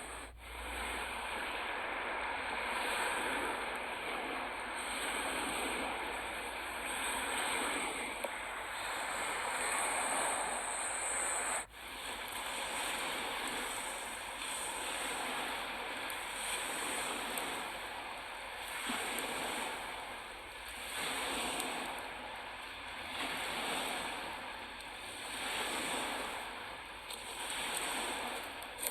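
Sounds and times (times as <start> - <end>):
waves washing onto shore: 0.0 - 28.9
strong wind: 0.9 - 11.7.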